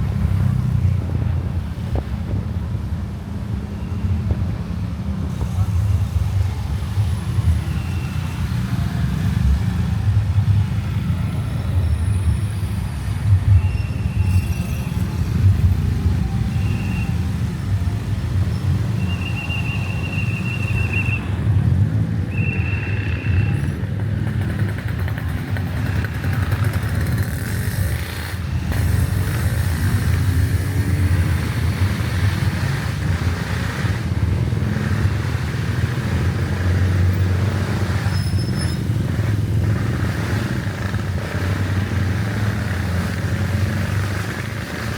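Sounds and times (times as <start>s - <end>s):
road and wind noise: 0.0s - 44.9s
motorcycle engine rumble: 15.0s - 44.9s.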